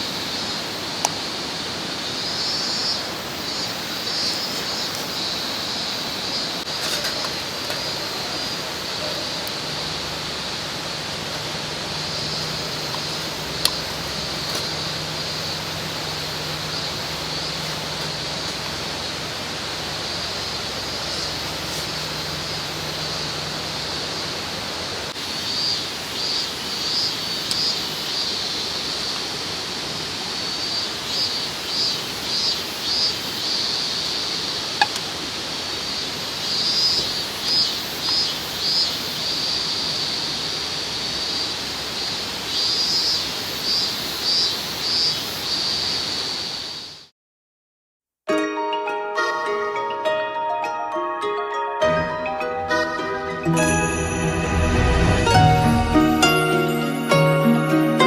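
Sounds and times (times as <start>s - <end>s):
mountain stream rushing: 0.0s - 46.9s, 53.3s - 58.0s
high-pitched call: 52.1s - 58.0s.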